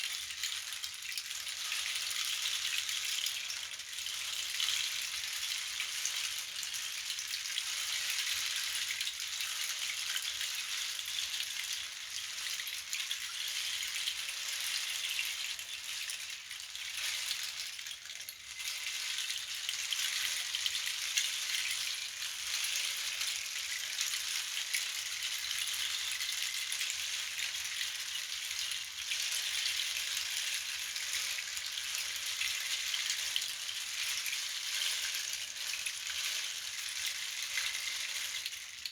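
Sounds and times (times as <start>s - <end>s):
shaker rain-like hiss: 0.0s - 38.9s.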